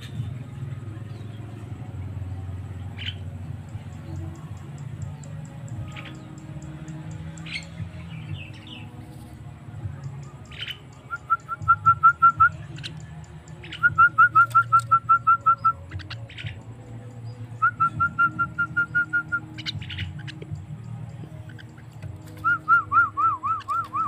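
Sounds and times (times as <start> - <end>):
bird whistled calls: 10.4 - 13.0, 13.6 - 16.6, 17.6 - 20.4, 22.4 - 24.0.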